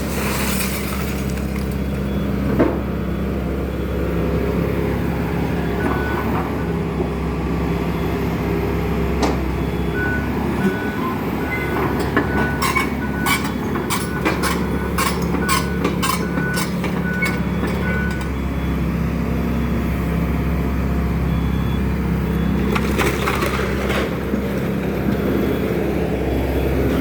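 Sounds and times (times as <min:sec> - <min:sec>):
demolition debris cracking: 0:00.0 - 0:02.0, 0:22.6 - 0:24.4
excavator diesel engine running: 0:00.9 - 0:27.0.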